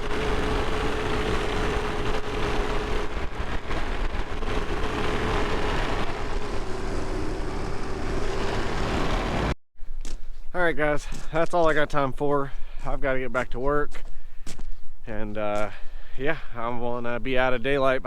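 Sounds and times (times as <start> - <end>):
tractor engine running: 0.0 - 9.6.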